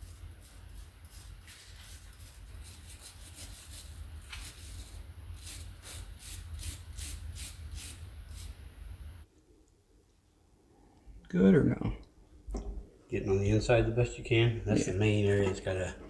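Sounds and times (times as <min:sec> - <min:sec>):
brush scrubbing metal terminal: 0:00.0 - 0:09.2.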